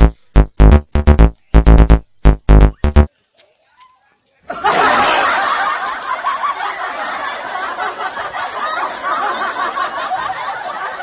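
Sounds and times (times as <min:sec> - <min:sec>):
laugh track: 0:04.5 - 0:11.0.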